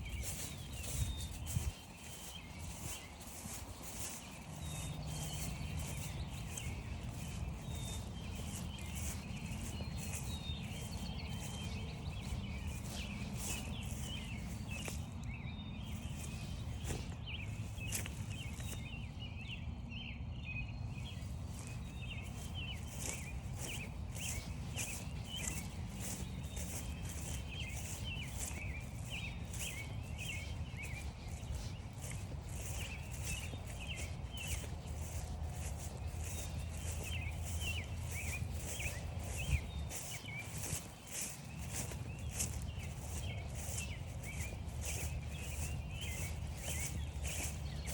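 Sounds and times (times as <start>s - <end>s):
footsteps crunching through grass: 0.0s - 19.6s, 20.9s - 47.9s
small birds chirping: 0.0s - 47.9s.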